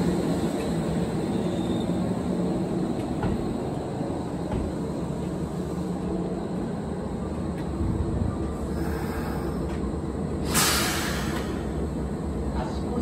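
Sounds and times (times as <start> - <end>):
electric train rumbling: 0.0 - 13.0
short loud hiss: 10.4 - 11.6.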